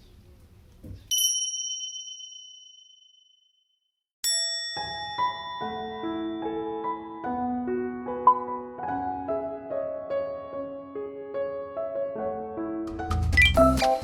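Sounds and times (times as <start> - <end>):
bright bell-like chime: 1.1 - 7.0
gentle piano music: 5.1 - 14.0.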